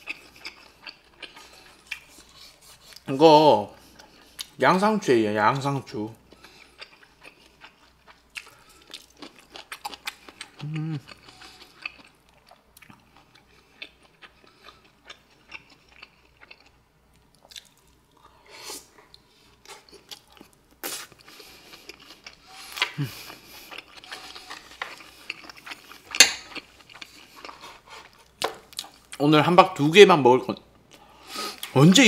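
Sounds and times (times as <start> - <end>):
chewing food: 0.0 - 3.1, 6.3 - 18.4, 19.0 - 29.2.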